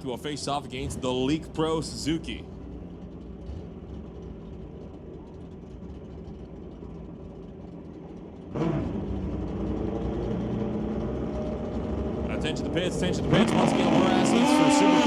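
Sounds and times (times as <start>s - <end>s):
motorcycle engines running: 0.0s - 15.0s
motorcycle engine revving: 8.4s - 15.0s.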